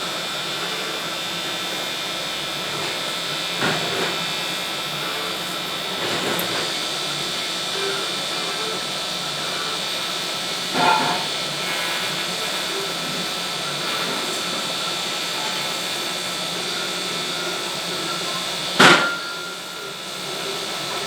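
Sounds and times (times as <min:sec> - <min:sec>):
arc welding hiss: 0:00.0 - 0:21.0.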